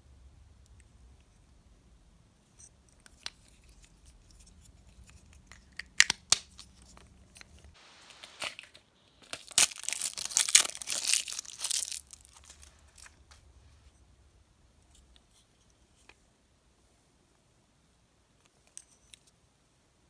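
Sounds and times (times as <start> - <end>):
candy wrapper clicks: 5.6 - 6.7, 9.3 - 12.6
wrapper tearing and crinkling: 8.2 - 13.2.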